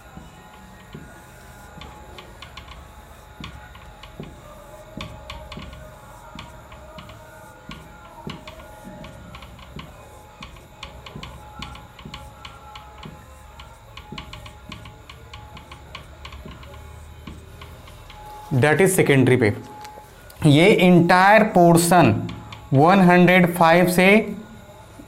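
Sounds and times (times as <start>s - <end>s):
pen tapping on writing surface: 5.0s - 13.2s, 15.6s - 18.1s.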